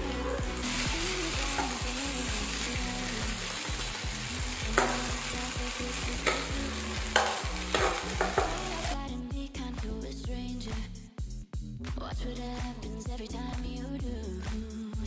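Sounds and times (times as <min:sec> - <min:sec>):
food sizzling in oil: 0:00.0 - 0:09.0
utensil knocking against pan: 0:07.1 - 0:08.6.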